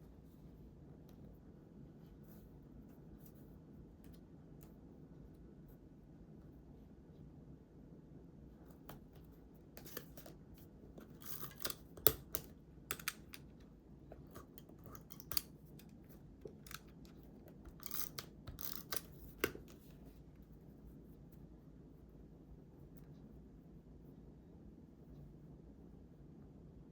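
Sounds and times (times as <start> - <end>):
scissors cutting paper: 11.0 - 13.4, 16.5 - 19.8.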